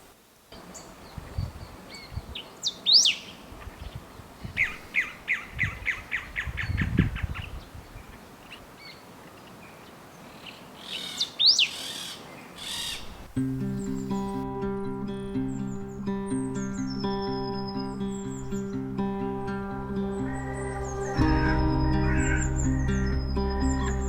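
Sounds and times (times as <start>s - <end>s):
bird descending notes: 16.4s - 24.0s
bird rising whistle: 20.0s - 24.0s.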